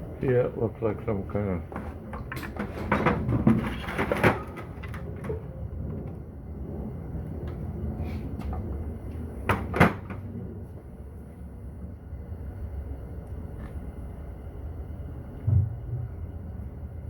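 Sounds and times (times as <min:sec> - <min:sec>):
metal parts knocking and clunking: 0:01.7 - 0:05.5
low hum: 0:04.5 - 0:17.0.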